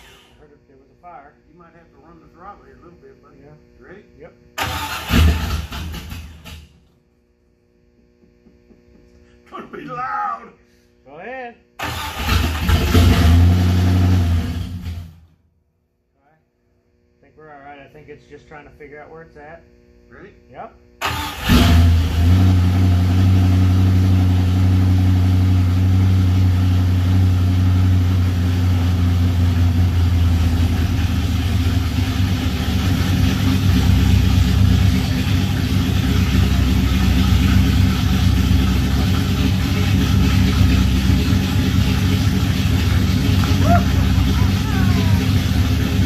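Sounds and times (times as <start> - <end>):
engine running at fast idle: 4.6 - 7.0, 11.8 - 15.3, 21.0 - 46.0.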